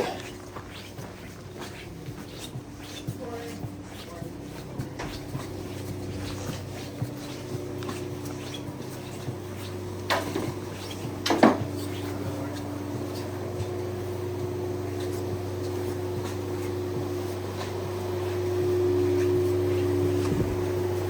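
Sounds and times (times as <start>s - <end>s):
chairlift humming: 0.0s - 21.0s
metallic clanks of chair: 10.0s - 12.0s.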